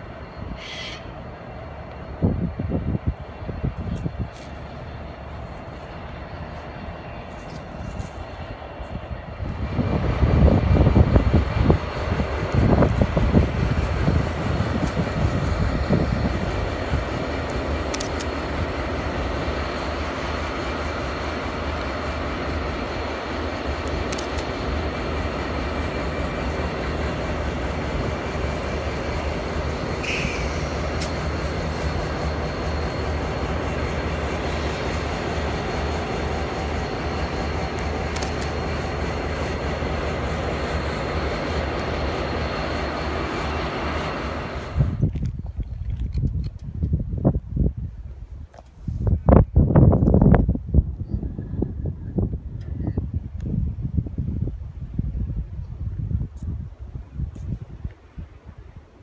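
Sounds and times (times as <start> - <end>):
diesel locomotives passing: 0.0 - 45.6
train cars rolling by: 0.0 - 46.0.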